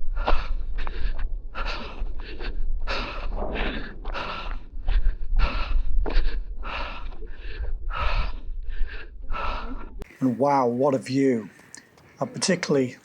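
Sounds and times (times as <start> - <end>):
person breathing hard: 0.0 - 10.2.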